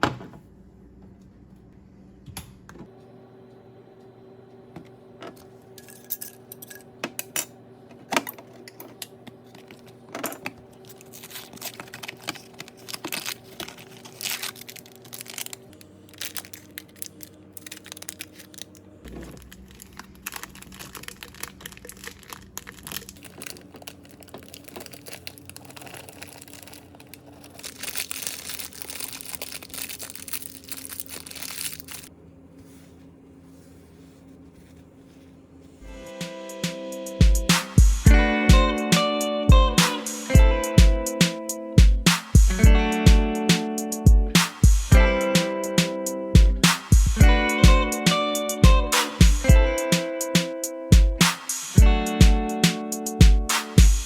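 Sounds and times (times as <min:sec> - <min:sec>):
kitchen items clicking and tapping: 0:05.3 - 0:32.1
packaging crinkling: 0:10.7 - 0:32.1.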